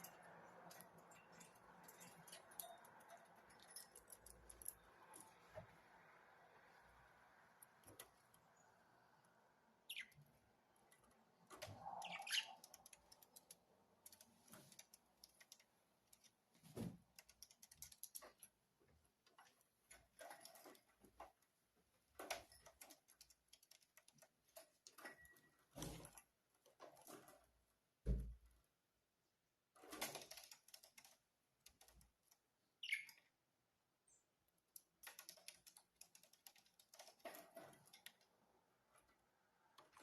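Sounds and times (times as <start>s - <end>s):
budgerigars chirping: 12.0s - 12.7s.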